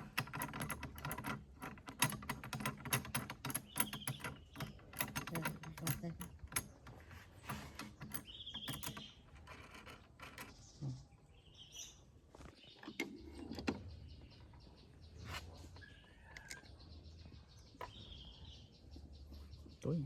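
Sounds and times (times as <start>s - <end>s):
clicks and knocks on machine parts: 0.0s - 10.5s
birds chirping: 0.0s - 20.0s.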